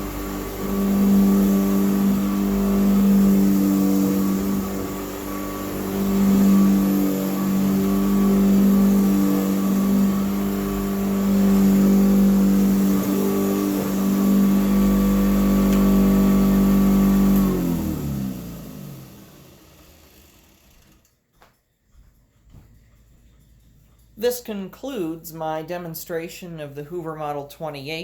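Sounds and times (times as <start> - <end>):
vacuum brush noise: 0.0 - 21.0
vacuum cleaner motor running: 0.0 - 21.0.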